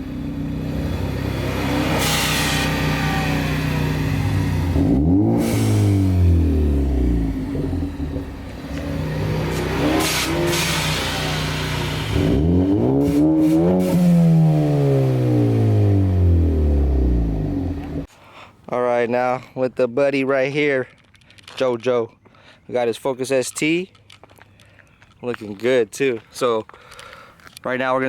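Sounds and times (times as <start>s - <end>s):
car engine revving: 0.0s - 18.1s.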